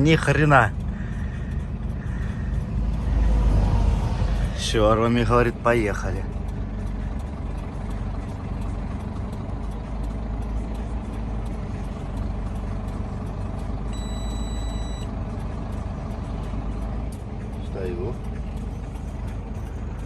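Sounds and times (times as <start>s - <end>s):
diesel truck engine running under load: 0.0s - 20.0s
high electronic beep: 13.9s - 15.1s.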